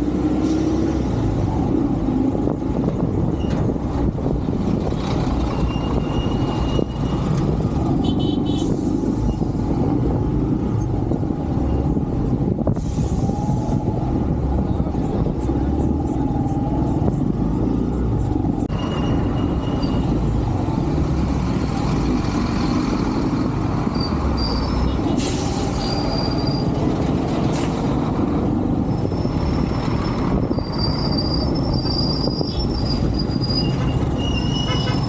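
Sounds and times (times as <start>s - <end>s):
wind rush: 0.3s - 23.9s
high-pitched squeaks: 18.7s - 20.3s, 29.1s - 35.0s.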